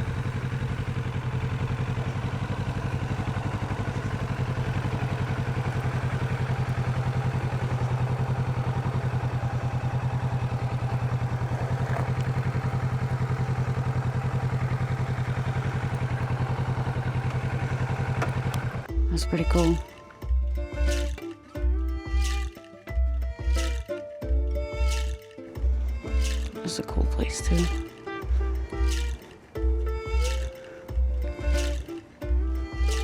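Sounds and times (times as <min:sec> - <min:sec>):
motorcycle engine idling: 0:00.0 - 0:22.2, 0:23.0 - 0:33.0.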